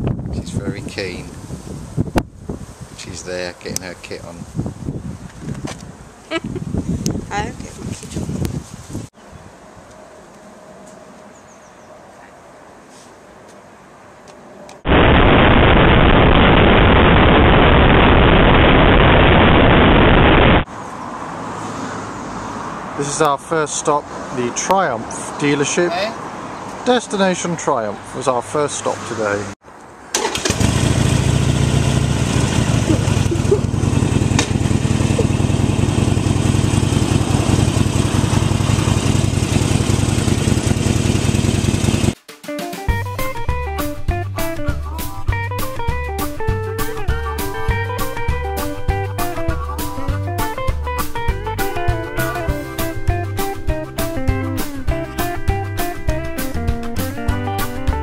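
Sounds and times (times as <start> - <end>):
wind rush on microphone: 0.0 - 9.6, 14.9 - 20.7
road noise: 0.0 - 42.3, 43.1 - 58.0
motorcycle engine running: 30.5 - 42.2.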